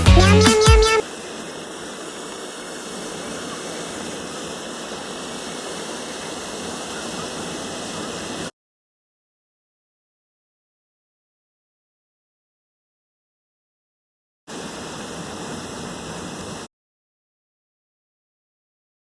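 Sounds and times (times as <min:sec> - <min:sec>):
music track: 0:00.0 - 0:01.0
waterfall rushing: 0:00.0 - 0:08.5, 0:14.5 - 0:16.7.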